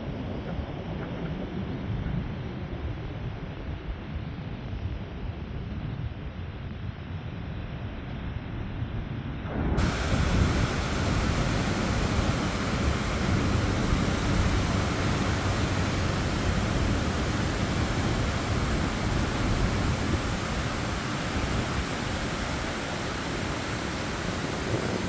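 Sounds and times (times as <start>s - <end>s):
wind buffeting microphone: 9.2s - 25.0s
sea surf on beach: 9.5s - 25.0s.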